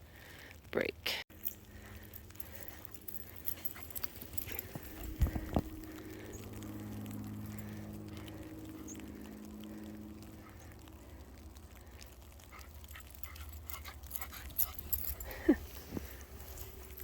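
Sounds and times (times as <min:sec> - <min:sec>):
faint steady hum: 0:00.1 - 0:17.0
footsteps crunching in snow: 0:03.6 - 0:06.1.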